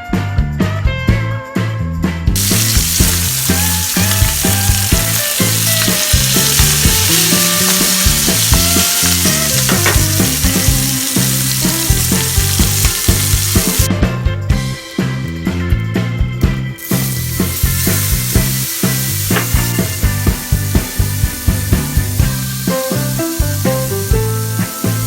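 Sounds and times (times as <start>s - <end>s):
background music: 0.0s - 25.0s
food sizzling in hot oil: 2.4s - 13.9s, 16.4s - 25.0s.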